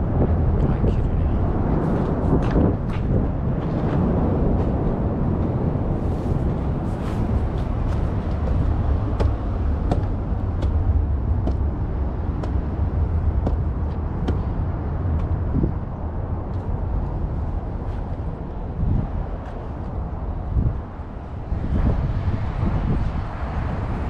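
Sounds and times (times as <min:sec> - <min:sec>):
road traffic rumble: 0:00.0 - 0:24.0
footsteps walking: 0:01.7 - 0:11.7, 0:18.9 - 0:20.0.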